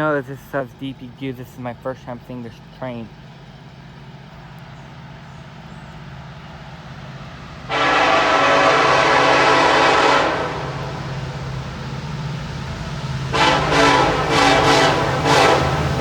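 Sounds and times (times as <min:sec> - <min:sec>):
locomotive low drone: 0:00.0 - 0:16.0
locomotive air horn blast: 0:07.7 - 0:11.3, 0:13.3 - 0:16.0.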